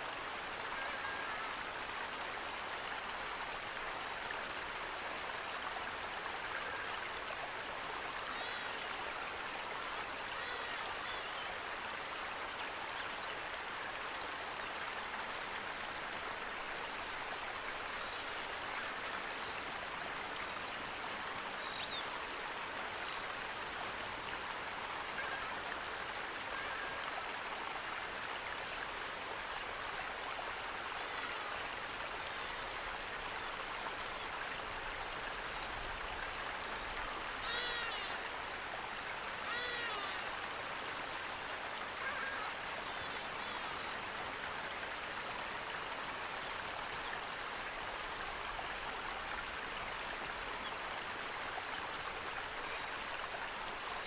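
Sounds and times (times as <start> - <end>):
running water rushing: 0.0 - 54.0
faint bird chirps: 37.4 - 38.2.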